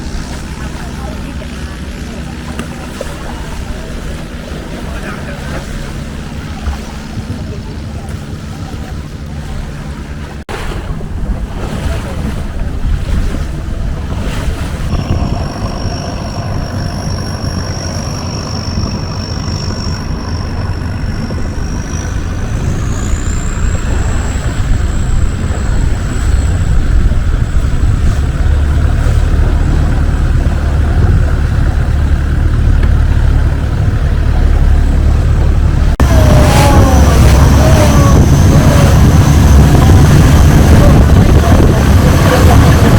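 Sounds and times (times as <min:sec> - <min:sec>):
boat engine rumbling: 0:00.0 - 0:42.9
rushing water: 0:00.0 - 0:42.9
wind on microphone: 0:00.0 - 0:42.9
high whine rising in pitch: 0:14.8 - 0:42.9.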